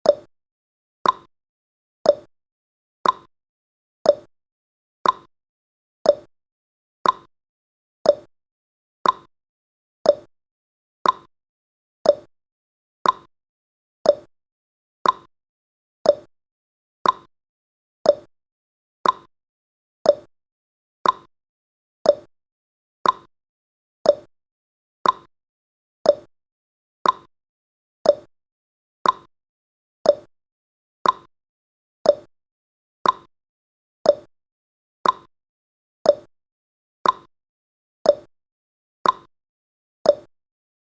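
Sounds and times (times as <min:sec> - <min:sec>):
timer ticking: 0:00.0 - 0:00.3, 0:01.0 - 0:01.3, 0:02.0 - 0:02.3, 0:03.0 - 0:03.3, 0:04.0 - 0:04.3, 0:05.0 - 0:05.3, 0:06.0 - 0:06.3, 0:07.0 - 0:07.3, 0:08.0 - 0:08.3, 0:09.0 - 0:09.3, 0:10.0 - 0:10.3, 0:11.0 - 0:11.3, 0:12.0 - 0:12.3, 0:13.0 - 0:13.3, 0:14.0 - 0:14.3, 0:15.0 - 0:15.3, 0:16.0 - 0:16.3, 0:17.0 - 0:17.3, 0:18.0 - 0:18.3, 0:19.0 - 0:19.3, 0:20.0 - 0:20.3, 0:21.0 - 0:21.3, 0:22.0 - 0:22.3, 0:23.0 - 0:23.3, 0:24.0 - 0:24.3, 0:25.0 - 0:25.3, 0:26.0 - 0:26.3, 0:27.0 - 0:27.3, 0:28.0 - 0:28.3, 0:29.0 - 0:29.3, 0:30.0 - 0:30.3, 0:31.0 - 0:31.3, 0:32.0 - 0:32.3, 0:33.0 - 0:33.3, 0:34.0 - 0:34.3, 0:35.0 - 0:35.3, 0:36.0 - 0:36.3, 0:37.0 - 0:37.3, 0:38.1 - 0:38.3, 0:39.0 - 0:39.3, 0:40.1 - 0:40.3.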